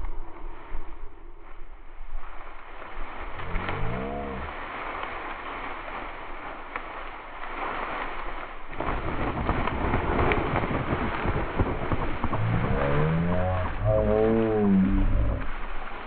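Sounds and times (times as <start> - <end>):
short wavering voice-like tone: 12.5 - 15.5.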